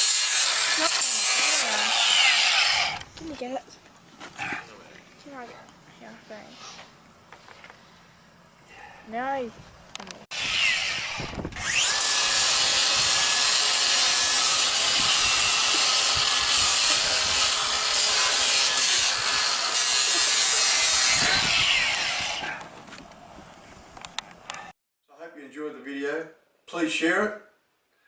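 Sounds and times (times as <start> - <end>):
power grinder grinding hoof: 0.0 - 3.1, 10.3 - 22.5.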